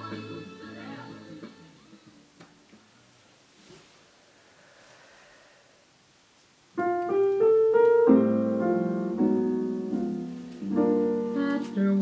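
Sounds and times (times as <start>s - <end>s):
piano notes and chords: 6.8s - 12.0s.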